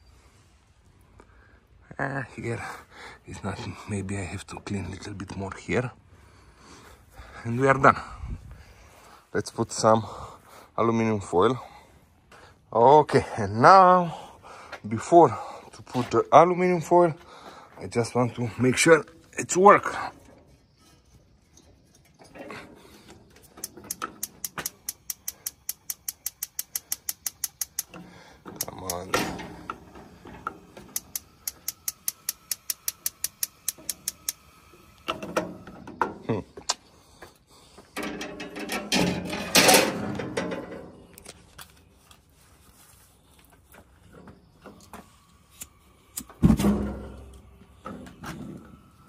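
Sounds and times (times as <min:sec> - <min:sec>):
grill spark igniter clicking rapidly: 0:23.5 - 0:28.0, 0:28.6 - 0:35.2.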